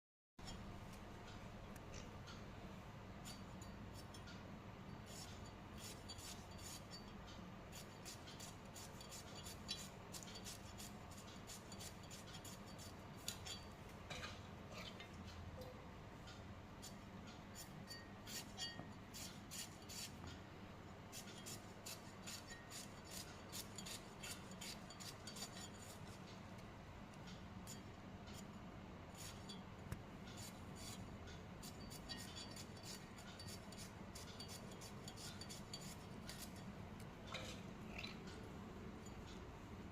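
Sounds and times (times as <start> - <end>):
knife slicing vegetables: 21.1 - 26.0.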